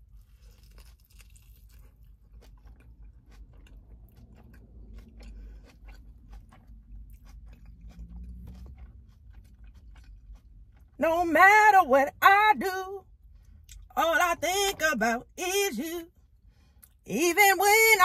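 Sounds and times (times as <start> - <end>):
crunchy chewing: 0.0 - 11.0.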